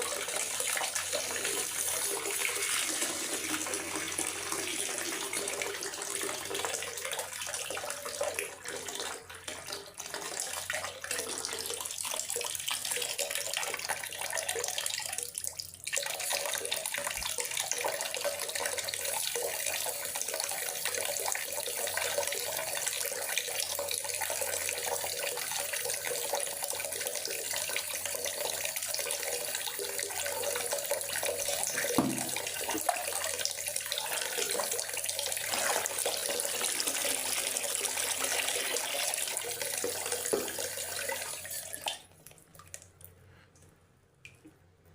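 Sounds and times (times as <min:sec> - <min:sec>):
short low thump: 0:32.0 - 0:32.4.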